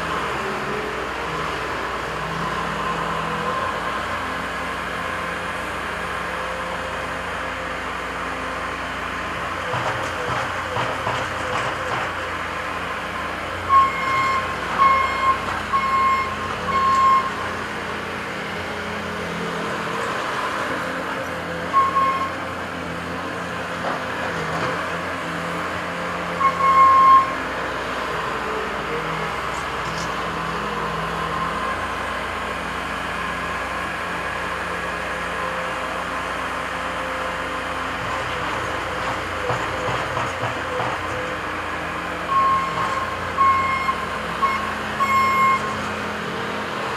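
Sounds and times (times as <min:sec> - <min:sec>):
machine engines running: 0:00.0 - 0:46.9
reversing alarm beeping: 0:13.6 - 0:17.5, 0:21.7 - 0:22.4, 0:26.3 - 0:27.4, 0:42.2 - 0:45.8.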